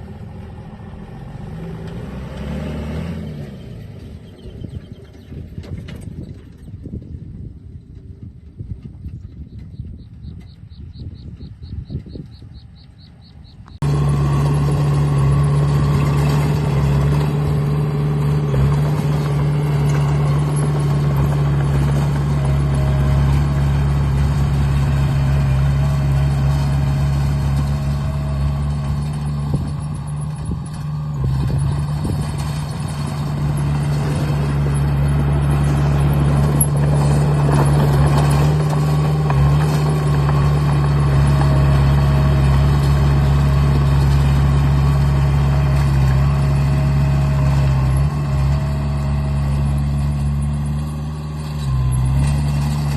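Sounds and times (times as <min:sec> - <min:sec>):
diesel engine idling: 0:13.0 - 0:52.9.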